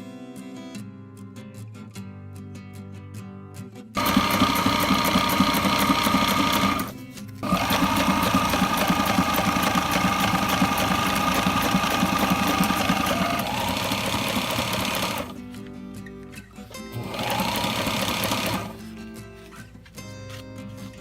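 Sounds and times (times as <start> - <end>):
sewing machine stitching: 4.0 - 15.4, 16.7 - 18.9.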